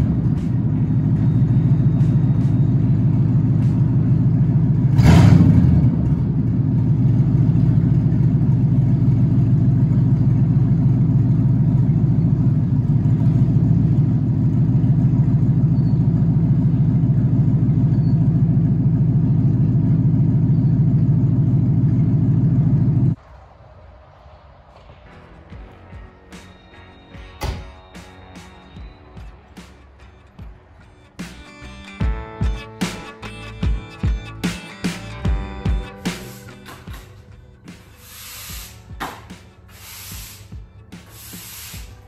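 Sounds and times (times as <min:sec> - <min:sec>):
engine revving: 0:00.0 - 0:23.5
car engine idling: 0:00.0 - 0:42.0.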